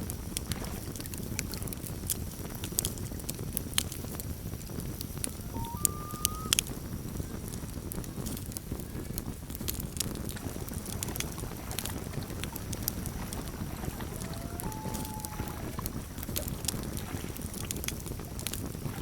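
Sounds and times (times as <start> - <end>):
campfire crackling and popping: 0.0 - 19.0
loon wailing: 5.4 - 6.8, 13.3 - 16.0.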